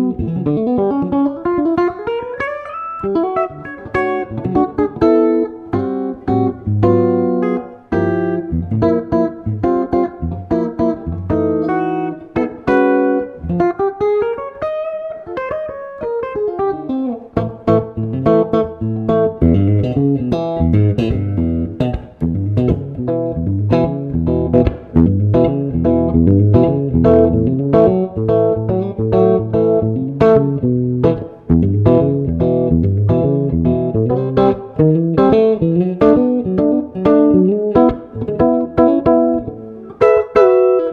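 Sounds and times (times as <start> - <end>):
clean electric guitar jazz: 0.0 - 40.9
low bass notes: 19.4 - 34.4.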